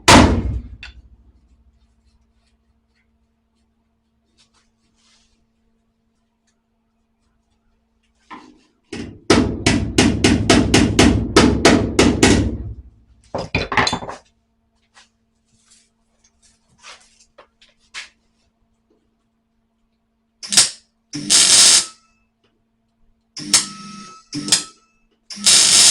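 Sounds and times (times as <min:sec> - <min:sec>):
hammer striking sheet steel: 0:09.0 - 0:12.8.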